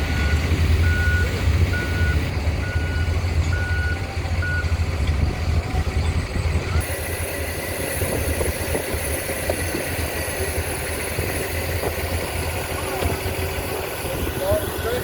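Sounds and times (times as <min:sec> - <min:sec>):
reversing alarm beep: 0:00.0 - 0:04.8
heavy engine idling: 0:00.0 - 0:15.0.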